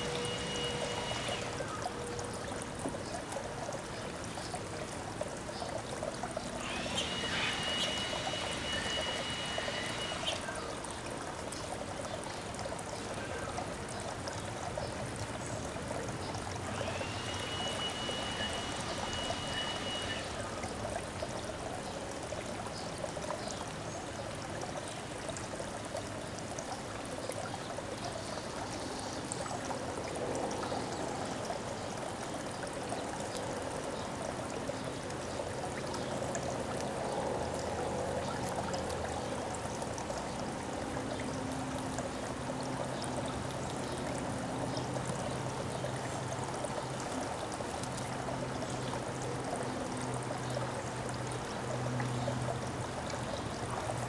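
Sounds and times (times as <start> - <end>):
trickling water: 0.0 - 54.0.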